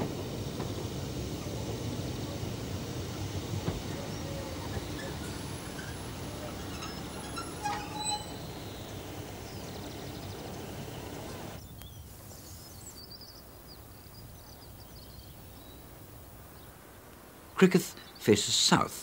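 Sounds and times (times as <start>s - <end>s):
train rumbling into station: 0.0s - 11.6s
birds chirping: 0.0s - 16.8s
brief high squeals: 4.9s - 9.0s.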